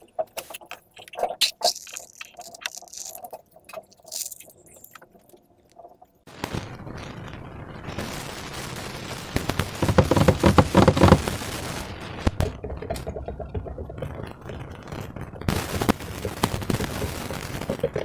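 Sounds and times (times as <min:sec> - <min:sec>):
slime crackling and popping: 0:00.4 - 0:05.8.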